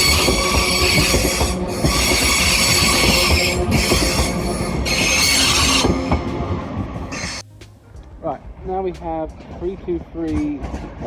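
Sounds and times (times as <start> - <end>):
train wheels squealing: 0.0 - 6.3, 7.1 - 7.4
wheels knocking over rail joints: 0.0 - 6.3
low train rumble: 0.0 - 11.0.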